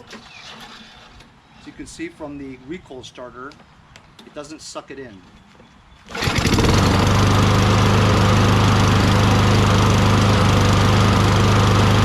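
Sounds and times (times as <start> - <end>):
recoil starter pull: 6.1 - 7.2
lawn mower engine running: 6.1 - 12.0.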